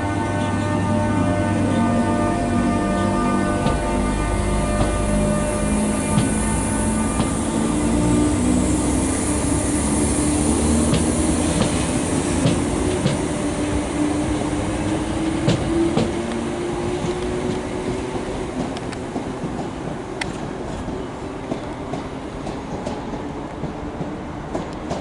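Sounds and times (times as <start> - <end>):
train mechanical hum: 0.0 - 25.0.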